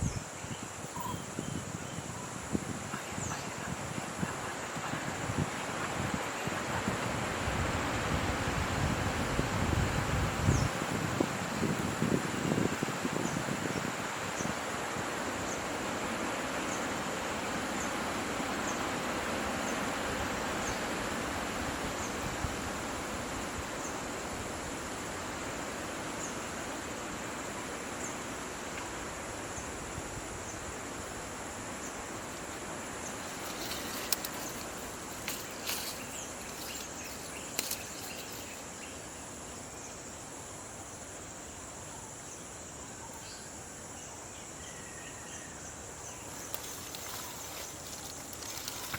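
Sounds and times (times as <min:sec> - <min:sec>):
faint chirp: 0:00.0 - 0:06.9
high-pitched insect drone: 0:00.0 - 0:08.7.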